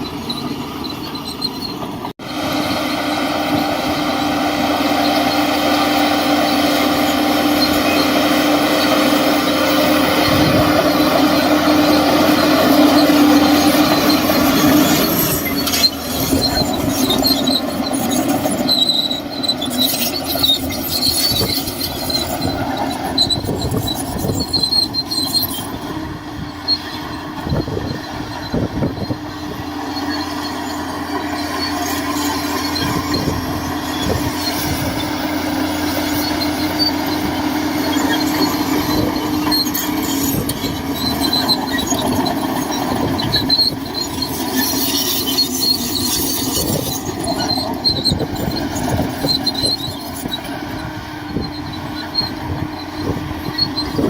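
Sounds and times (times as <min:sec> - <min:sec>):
bulldozer diesel engine running: 0:00.0 - 0:54.0
steel tracks squealing and clanking: 0:00.0 - 0:54.0.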